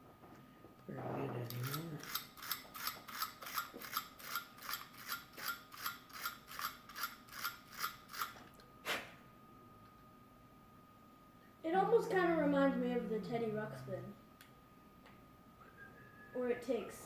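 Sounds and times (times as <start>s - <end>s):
toy bank mechanism ratcheting clicks: 1.5s - 8.4s.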